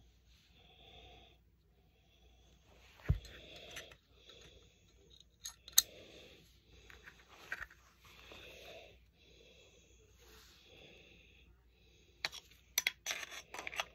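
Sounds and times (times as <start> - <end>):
pistol parts clicking and knocking: 5.1 - 5.9, 12.2 - 13.9.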